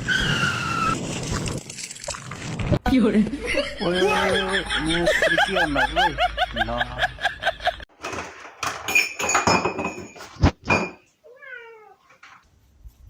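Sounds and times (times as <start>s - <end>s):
knocking and clattering: 8.0s - 11.0s
cat meowing: 11.2s - 12.0s.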